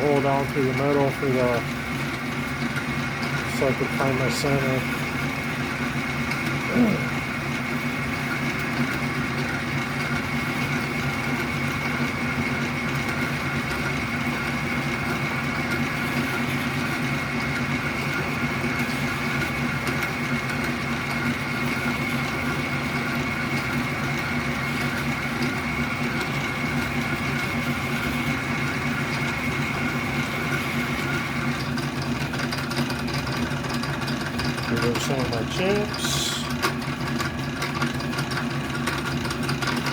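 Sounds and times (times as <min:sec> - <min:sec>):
lathe gear hum: 0:00.0 - 0:39.9
drill bit cutting metal: 0:34.5 - 0:36.7.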